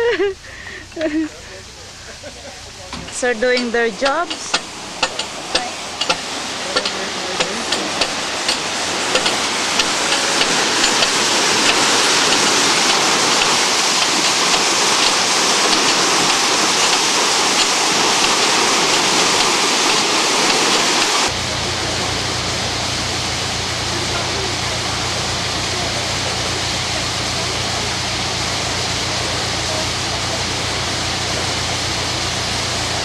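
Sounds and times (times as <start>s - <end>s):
low steady hum: 0.0s - 20.0s
water rushing through lock: 0.0s - 33.0s.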